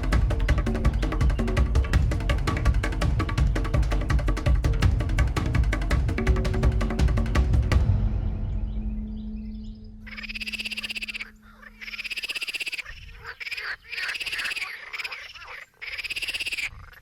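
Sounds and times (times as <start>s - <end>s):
music track: 0.0s - 12.3s
frogs trilling: 10.0s - 17.0s.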